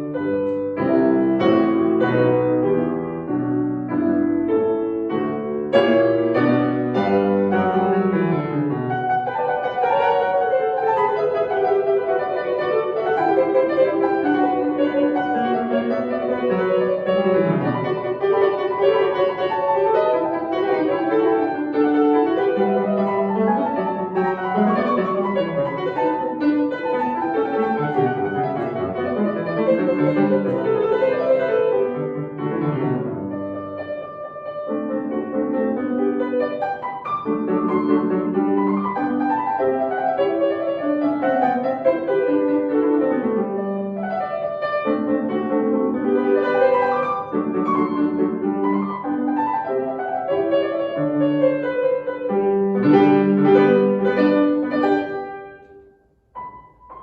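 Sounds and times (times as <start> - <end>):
solo piano piece: 0.0 - 57.0.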